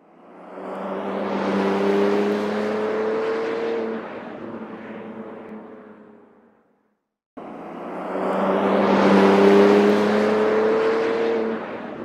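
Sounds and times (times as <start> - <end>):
car engine accelerating: 7.9 - 12.0.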